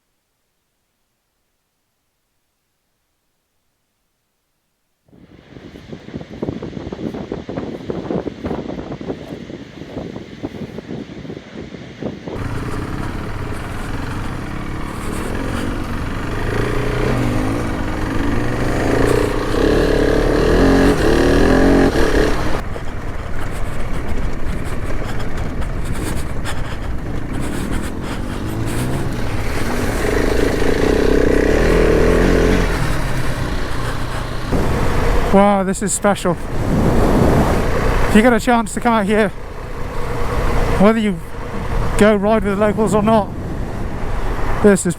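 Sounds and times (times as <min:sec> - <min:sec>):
wind noise: 0:05.1 - 0:44.9
motorcycle engine revving: 0:12.4 - 0:35.6, 0:36.4 - 0:44.6.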